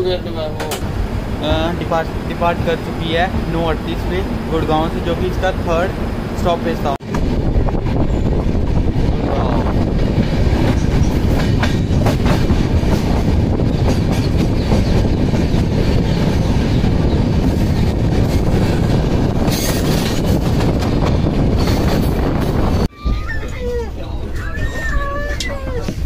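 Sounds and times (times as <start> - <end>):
train wheels rumbling on rails: 0.0 - 26.0
clickety-clack over rail joints: 0.4 - 1.0, 9.7 - 22.9.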